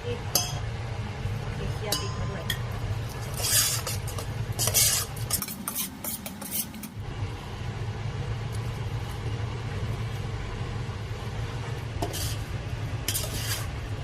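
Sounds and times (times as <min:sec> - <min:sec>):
stirring: 0:02.0 - 0:07.0, 0:10.9 - 0:14.0.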